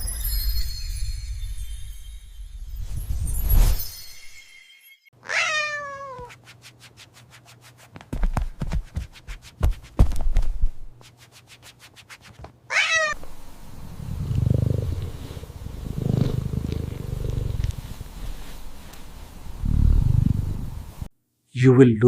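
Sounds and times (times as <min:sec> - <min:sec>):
cat meowing: 0:05.2 - 0:06.4, 0:12.7 - 0:13.2
low rumbling: 0:13.4 - 0:21.1.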